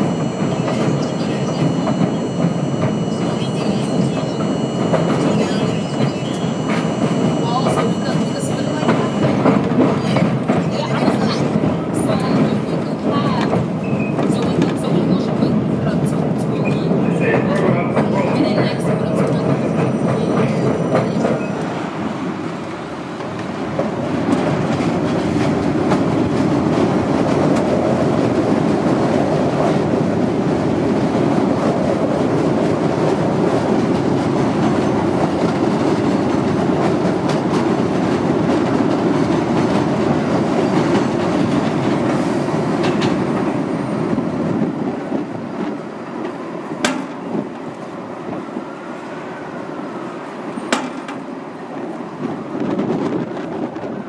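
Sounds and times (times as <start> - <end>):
subway train rumbling: 0.0 - 54.0
wheels clacking over rail joints: 22.4 - 49.5, 50.2 - 54.0.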